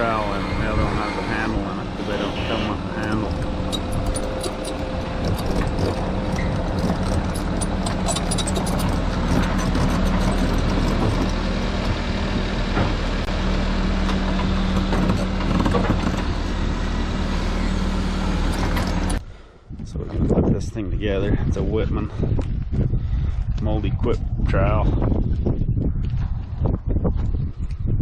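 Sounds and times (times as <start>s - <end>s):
engine humming: 0.0s - 20.4s.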